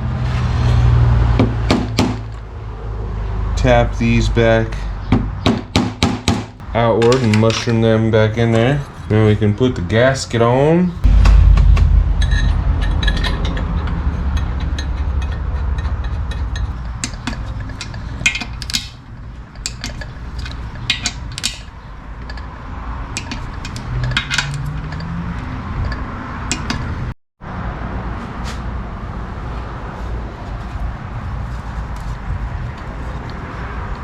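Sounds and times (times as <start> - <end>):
metal parts and tools clinking: 6.9 - 8.0, 12.2 - 27.1
steady low hum: 10.9 - 27.1.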